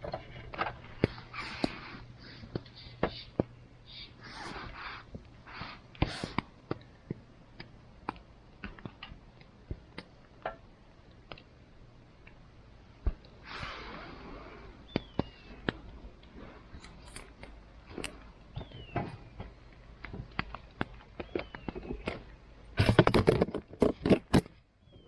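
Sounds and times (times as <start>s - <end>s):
campfire crackling and popping: 5.1s - 13.9s
rushing hiss: 13.4s - 14.7s.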